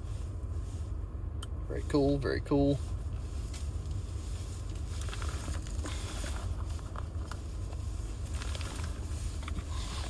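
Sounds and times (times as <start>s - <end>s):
steady low hum: 0.0s - 10.0s
wrapping rustling: 2.9s - 10.0s.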